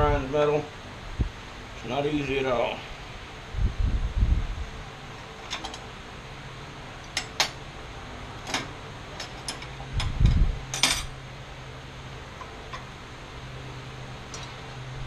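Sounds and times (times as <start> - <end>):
low shop hum: 0.0 - 15.0
metal tools clinking: 10.7 - 11.1.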